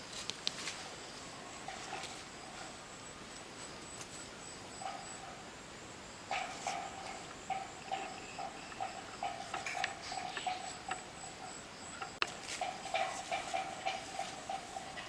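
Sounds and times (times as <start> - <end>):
insect lower chirping: 0.0 - 15.0
insect high trill: 6.0 - 15.0.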